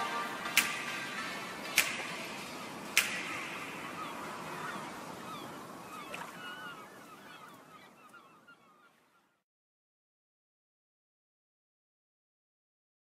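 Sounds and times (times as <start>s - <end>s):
steady background hiss: 0.0s - 9.3s
birds calling: 0.4s - 9.4s.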